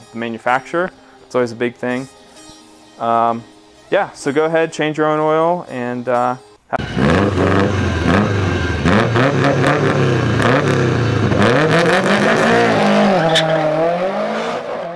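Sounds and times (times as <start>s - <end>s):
car engine revving: 6.8s - 14.9s.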